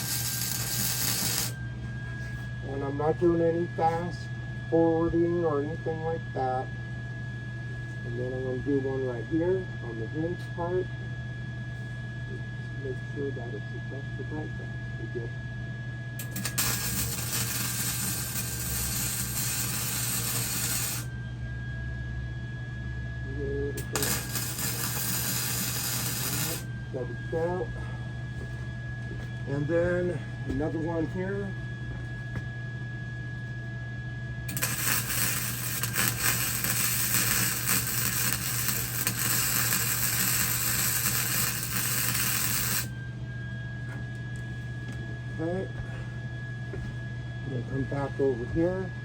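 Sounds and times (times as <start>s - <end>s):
welding arc crackling: 0.0s - 1.6s, 16.2s - 21.1s, 23.8s - 26.6s, 34.5s - 42.9s
low machine hum: 0.0s - 49.0s.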